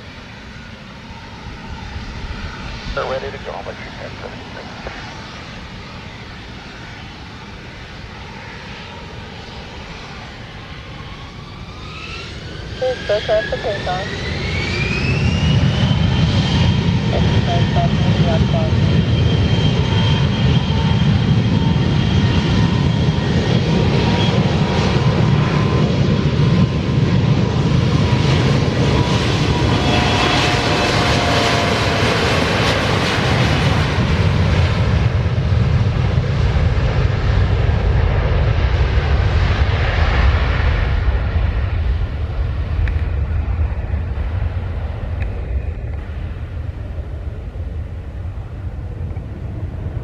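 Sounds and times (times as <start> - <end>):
jet engines rumbling: 0.0 - 50.0.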